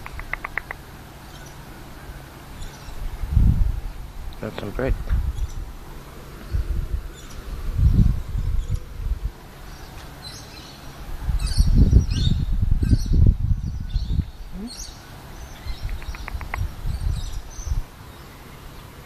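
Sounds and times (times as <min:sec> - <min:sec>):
quick ticks: 0:00.0 - 0:00.8, 0:15.8 - 0:16.7
bird chirps: 0:00.0 - 0:03.0, 0:09.6 - 0:19.0
wind rumbling on microphone: 0:02.5 - 0:18.3.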